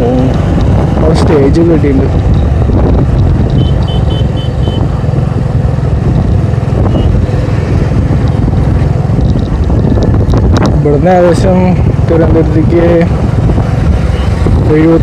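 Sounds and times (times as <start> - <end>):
motorcycle engine rumble: 0.0 - 15.0
wind on microphone: 0.0 - 15.0
short high beeps: 3.5 - 4.8.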